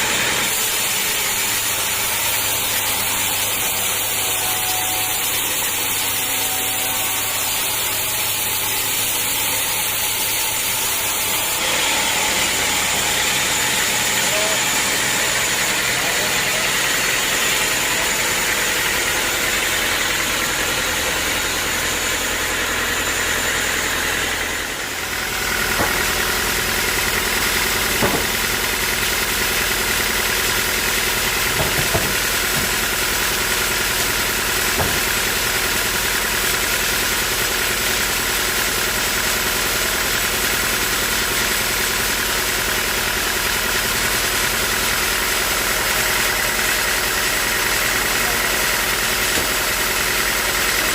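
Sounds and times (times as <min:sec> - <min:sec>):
sawmill engine and saw running: 0:00.0 - 0:50.9
sharp knocks: 0:25.7 - 0:26.2, 0:28.0 - 0:28.4, 0:31.5 - 0:32.8, 0:34.7 - 0:35.2.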